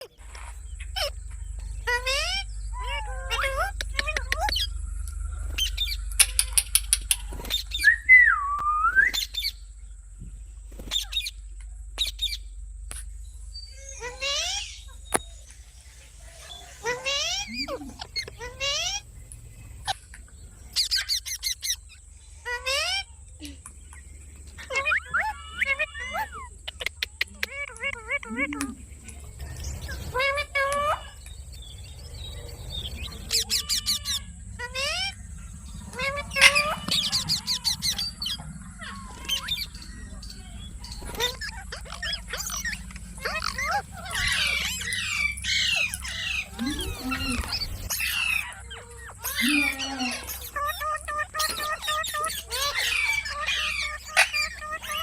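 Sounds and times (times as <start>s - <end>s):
parrot chirping and squawking: 0.0s - 4.8s, 5.4s - 8.3s, 9.1s - 9.7s, 10.7s - 11.4s, 12.0s - 15.4s, 16.3s - 19.2s, 19.8s - 23.2s, 24.5s - 55.0s
parrot whistle: 5.3s - 9.6s.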